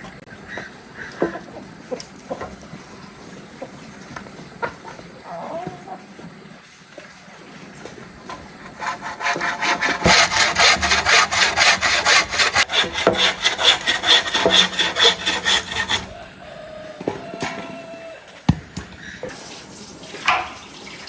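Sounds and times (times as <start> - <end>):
hand saw cutting wood: 8.6 - 16.1.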